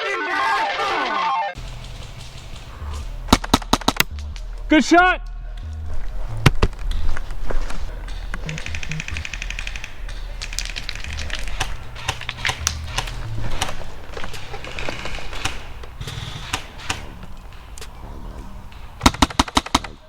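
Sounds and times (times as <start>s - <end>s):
airsoft gun firing bursts: 8.5s - 17.0s, 19.0s - 20.0s.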